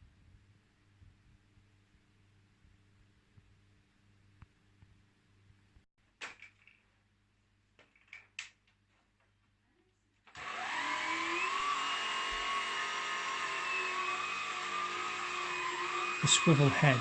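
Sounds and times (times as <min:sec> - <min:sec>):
vacuum cleaner motor whine: 0:10.3 - 0:17.0.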